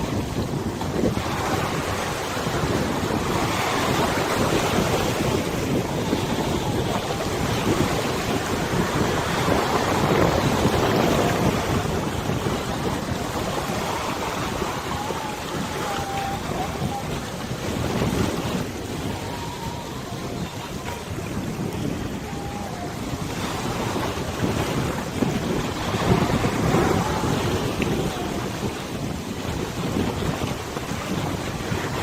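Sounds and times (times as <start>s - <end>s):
river water rushing: 0.0s - 32.0s
wind buffeting microphone: 0.0s - 32.0s.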